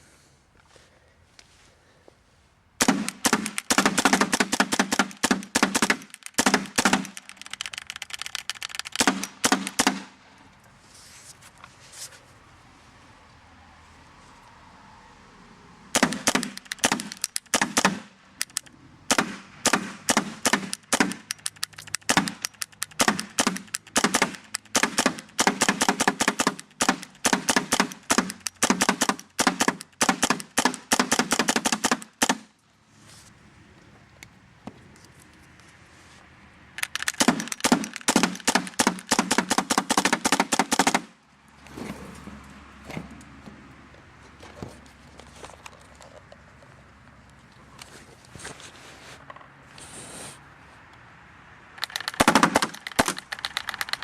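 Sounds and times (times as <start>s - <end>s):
paintball marker firing pops: 16.0s - 32.5s.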